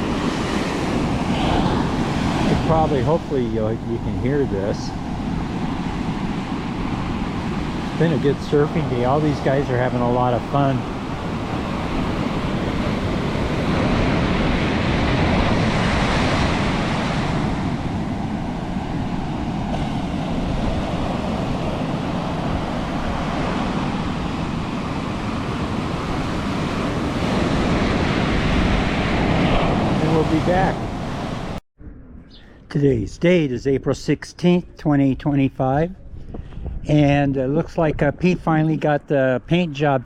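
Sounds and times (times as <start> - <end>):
ocean surf breaking: 0.0 - 31.6.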